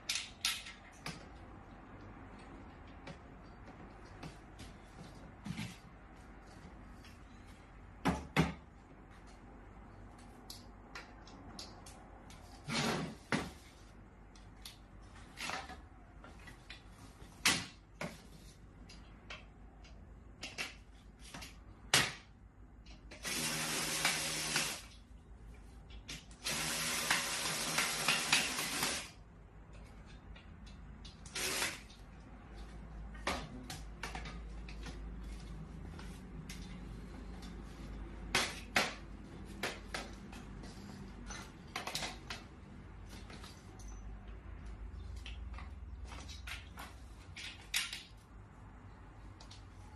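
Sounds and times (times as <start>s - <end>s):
power drill running: 23.2s - 24.8s, 26.4s - 29.1s, 31.3s - 31.8s.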